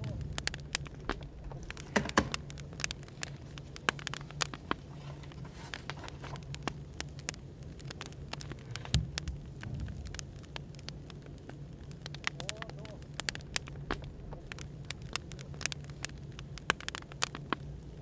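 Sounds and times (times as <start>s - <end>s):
cafe background hum: 0.0s - 8.9s
wood fire crackling: 0.0s - 18.0s.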